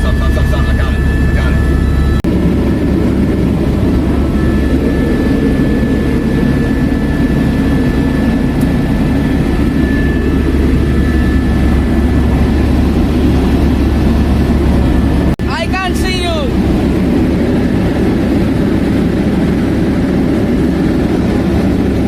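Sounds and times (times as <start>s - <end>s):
faint high whine: 0.0s - 2.2s, 2.9s - 15.3s
helicopter engine and rotor drone: 0.0s - 22.0s.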